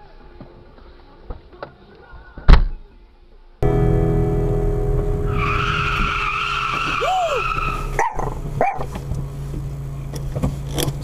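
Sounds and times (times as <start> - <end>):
road and engine noise: 0.0 - 11.0
car tyres squealing: 5.2 - 9.1.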